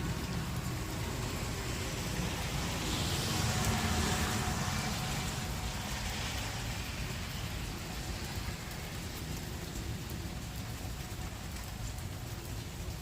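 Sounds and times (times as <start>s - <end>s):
heavy rain: 0.0s - 13.0s
vehicle tyres hissing on wet road: 0.0s - 13.0s.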